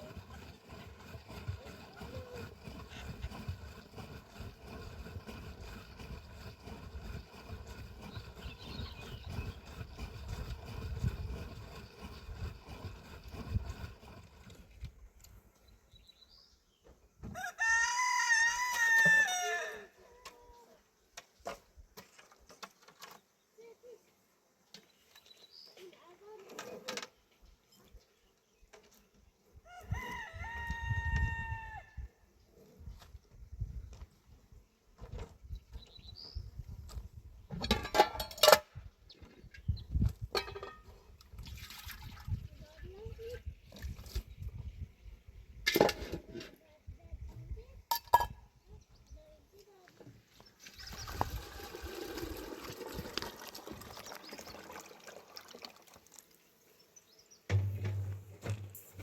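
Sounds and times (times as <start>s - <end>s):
rooster crowing: 17.4s - 19.9s, 29.7s - 31.9s
water pouring and trickling: 41.2s - 44.1s, 50.6s - 56.6s.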